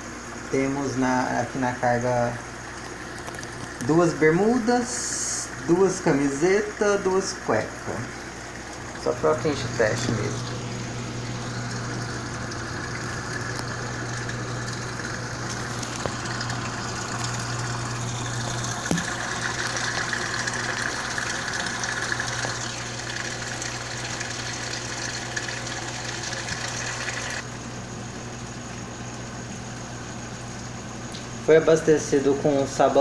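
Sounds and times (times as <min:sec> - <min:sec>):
washing machine hum: 0:00.0 - 0:33.0
water rushing in: 0:02.9 - 0:27.4.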